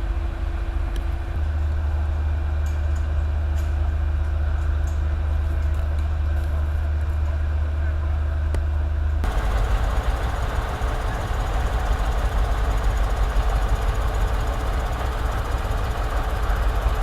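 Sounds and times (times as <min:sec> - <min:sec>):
diesel machinery engine drone: 0:00.0 - 0:17.0
harsh rattling machine: 0:09.2 - 0:17.0.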